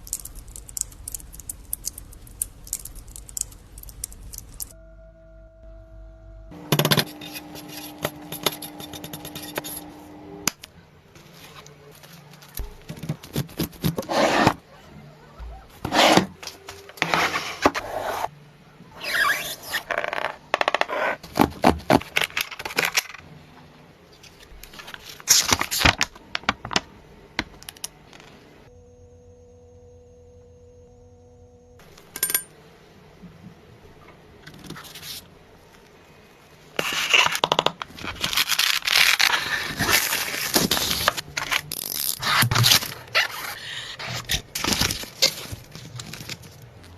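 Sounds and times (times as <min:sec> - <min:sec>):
steady low hum: 0:00.0 - 0:12.8, 0:26.1 - 0:36.8
scraping and clinking of hand work: 0:06.7 - 0:10.0.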